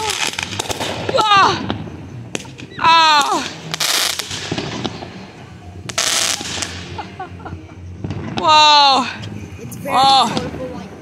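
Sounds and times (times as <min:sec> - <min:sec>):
fireworks bangs: 0:00.0 - 0:08.6
fireworks crackling: 0:00.0 - 0:11.0.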